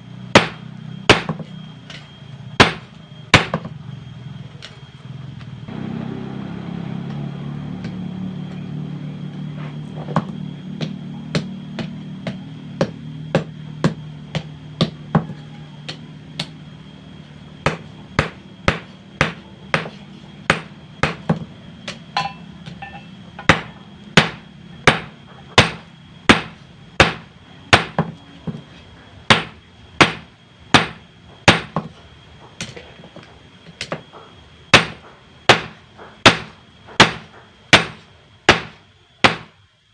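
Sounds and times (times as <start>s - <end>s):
low hum: 0.0s - 39.9s
hammer striking steel on anvil: 17.7s - 28.1s.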